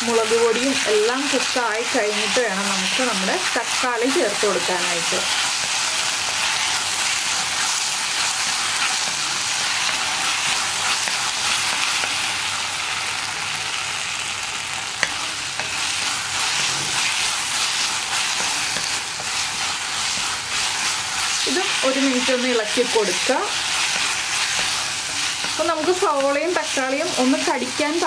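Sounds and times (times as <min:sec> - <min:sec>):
onions sizzling in oil: 0:00.0 - 0:28.0
wooden spatula scraping pan: 0:15.0 - 0:27.5.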